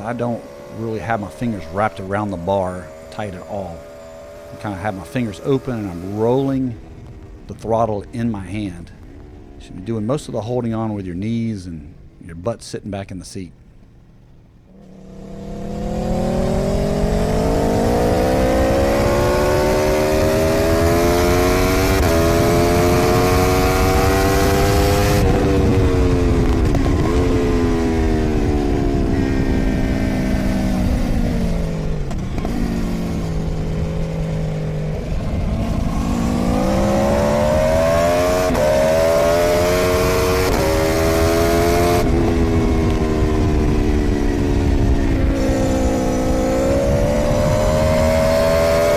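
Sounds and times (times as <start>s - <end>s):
motorcycle engine revving: 0.0s - 12.3s, 13.6s - 48.9s
wind rushing over microphone: 15.2s - 48.9s.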